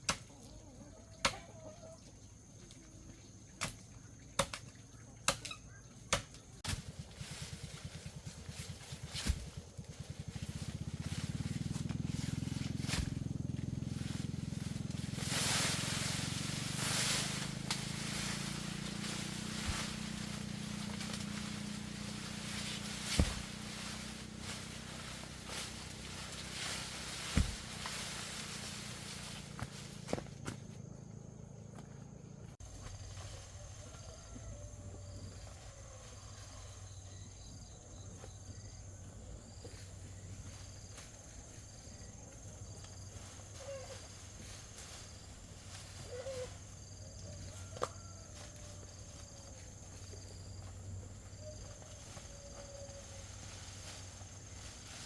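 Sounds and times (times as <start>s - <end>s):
insects droning and chirping: 0.0s - 55.0s
small engine humming: 7.0s - 32.8s.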